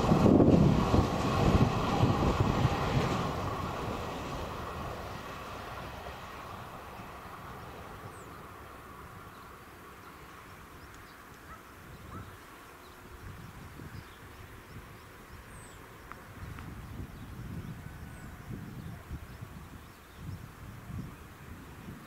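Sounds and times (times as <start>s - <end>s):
train rumble: 0.0s - 22.0s.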